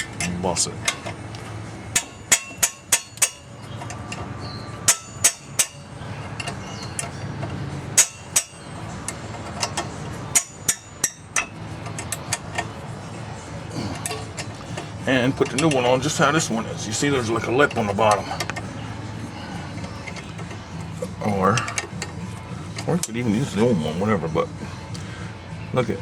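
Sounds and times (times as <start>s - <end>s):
tool striking steel: 2.0s - 3.5s, 4.9s - 5.9s, 8.0s - 8.7s, 9.6s - 11.5s.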